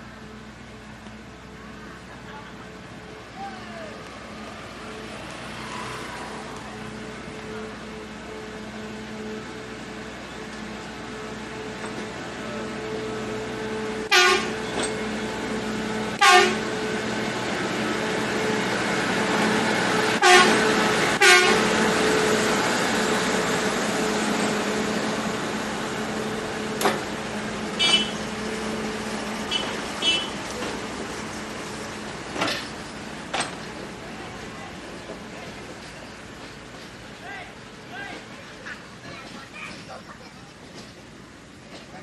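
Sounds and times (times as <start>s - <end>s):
train engine drone: 0.0s - 42.0s
train horn blasts: 14.0s - 14.8s, 16.1s - 16.8s, 20.1s - 22.3s, 27.8s - 28.3s, 29.5s - 30.4s.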